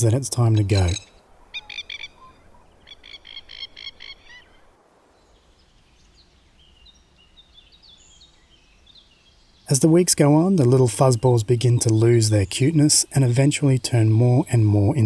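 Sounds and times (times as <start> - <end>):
high bird chirps: 0.0 - 4.6.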